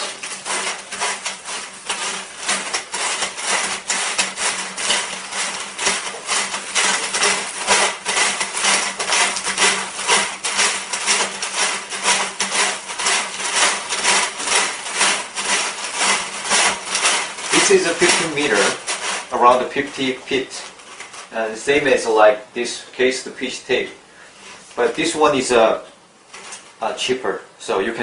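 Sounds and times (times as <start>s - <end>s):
fish tape clicking and scraping: 0.0s - 21.3s, 26.3s - 26.8s.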